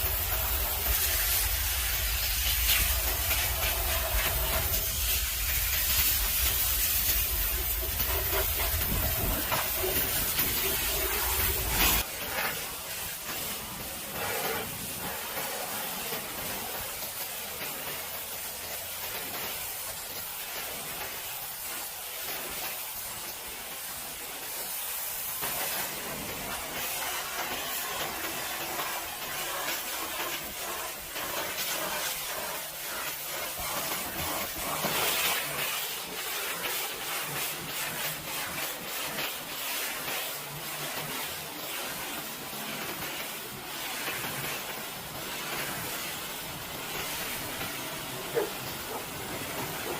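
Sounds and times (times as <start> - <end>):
pressure washer spraying water: 0.0 - 49.9.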